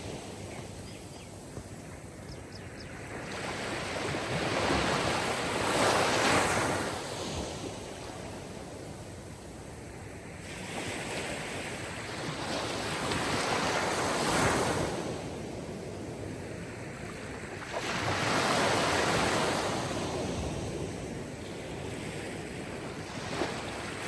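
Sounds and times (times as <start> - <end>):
sea waves breaking: 3.0 - 8.0, 17.4 - 24.0.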